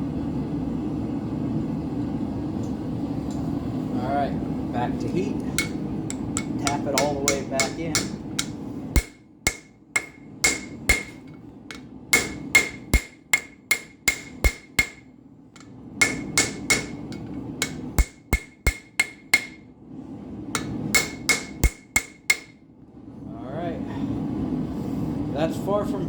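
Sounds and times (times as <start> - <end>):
hammer striking steel on anvil: 5.6 - 19.6, 20.6 - 22.6.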